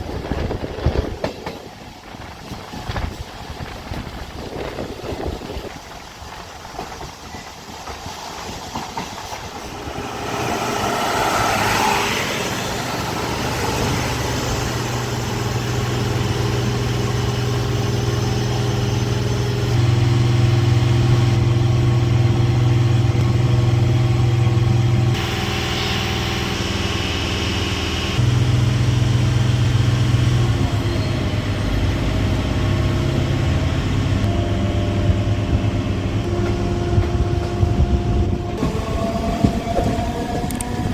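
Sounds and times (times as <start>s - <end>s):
rushing noise: 9.4s - 20.0s
electric train motor hum: 9.7s - 40.9s.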